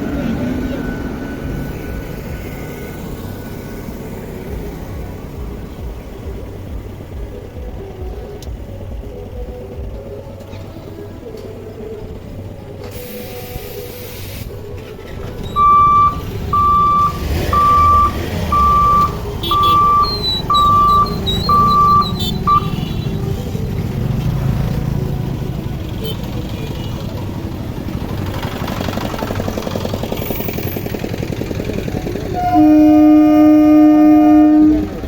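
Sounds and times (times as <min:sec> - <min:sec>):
low traffic rumble: 0:00.0 - 0:35.0
electronic warning beeps: 0:15.4 - 0:23.0.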